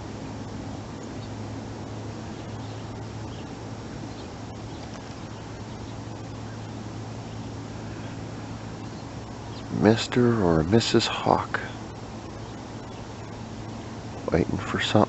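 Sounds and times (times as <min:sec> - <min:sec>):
background hiss: 0:00.0 - 0:15.0
steady low hum: 0:00.0 - 0:15.0
faint bird chirps: 0:02.1 - 0:09.9, 0:11.8 - 0:14.8.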